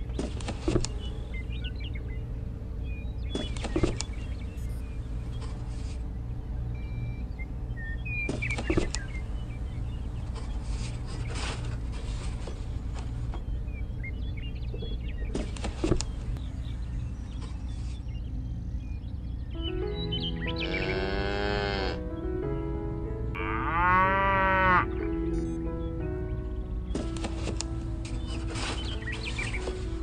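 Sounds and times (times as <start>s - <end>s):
faint bird chirps: 0.0s - 21.5s
steady low hum: 0.0s - 23.4s.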